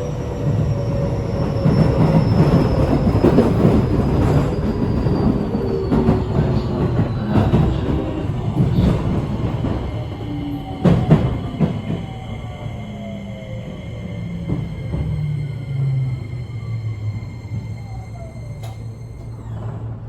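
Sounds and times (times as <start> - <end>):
electric train motor tones: 12.2 - 20.0.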